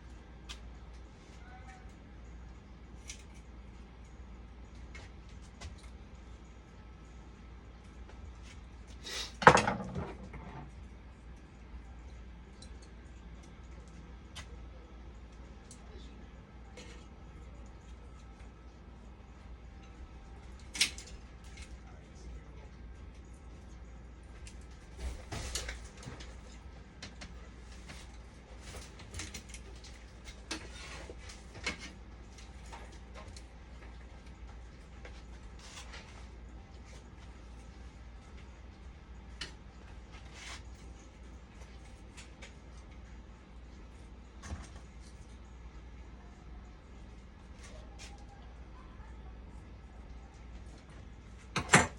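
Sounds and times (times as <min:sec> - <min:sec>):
low steady hum: 0:00.0 - 0:51.9
workbench clatter: 0:09.4 - 0:10.7.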